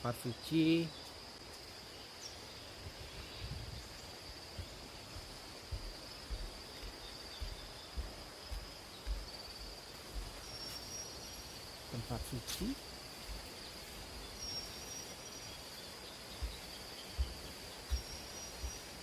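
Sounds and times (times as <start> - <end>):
insects droning: 0.0 - 19.0
soft outdoor hiss: 0.0 - 19.0
soft low thumps: 4.5 - 10.5, 16.4 - 19.0.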